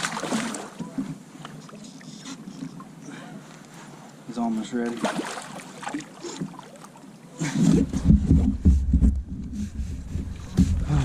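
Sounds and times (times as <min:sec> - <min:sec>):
water splashing: 0:00.0 - 0:03.0, 0:04.5 - 0:07.4
knocks against a kayak: 0:07.7 - 0:09.4.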